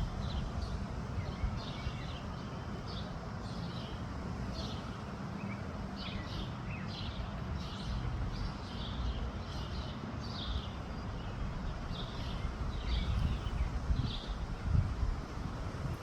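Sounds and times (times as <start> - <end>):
wind buffeting microphone: 0.0 - 4.5, 10.4 - 16.0.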